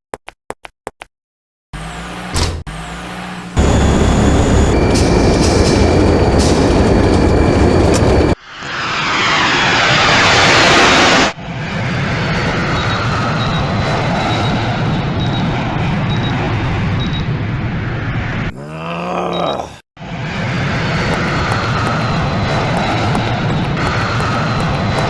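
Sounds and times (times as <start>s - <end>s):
jet engine rumble: 3.6s - 14.9s, 20.3s - 25.0s
rising jet engine rush: 3.6s - 14.9s, 20.1s - 25.0s.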